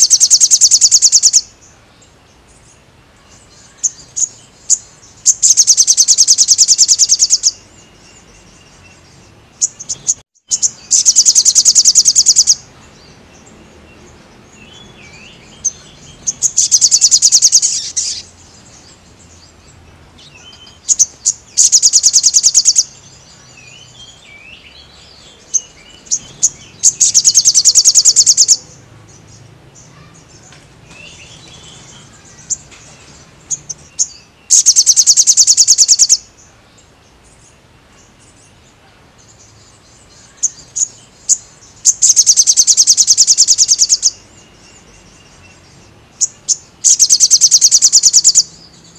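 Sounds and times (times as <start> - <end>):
bird fast high-pitched trills: 0.0 - 1.6, 3.4 - 9.0, 9.6 - 12.7, 15.1 - 18.8, 20.4 - 28.8, 31.0 - 36.3, 40.1 - 45.4, 46.2 - 48.9
soft twittering chirps: 0.0 - 48.9.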